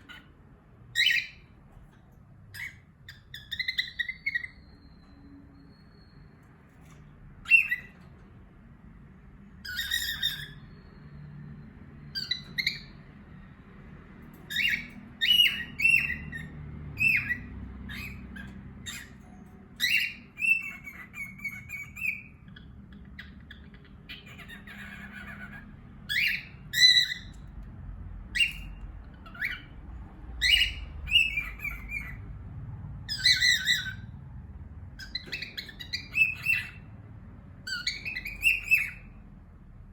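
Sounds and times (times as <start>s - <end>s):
parrots squawking and chirping: 0.0s - 39.9s
bird warbling whistles: 7.4s - 8.0s, 37.7s - 39.2s.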